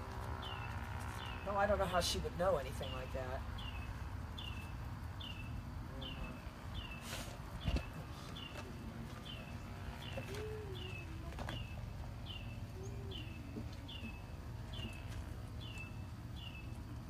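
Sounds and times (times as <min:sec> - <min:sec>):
high down-curving bird chirp: 0:00.3 - 0:01.7, 0:02.7 - 0:17.0
lower rising-and-falling bird call: 0:12.3 - 0:14.1.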